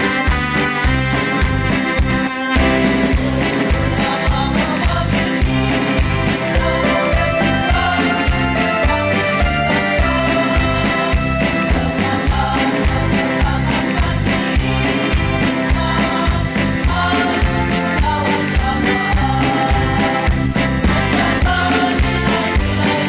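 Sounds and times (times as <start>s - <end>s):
amplified backing music with beat: 0.0s - 23.0s
bright high percussion strokes: 0.6s - 14.9s
choir singing: 2.6s - 23.0s.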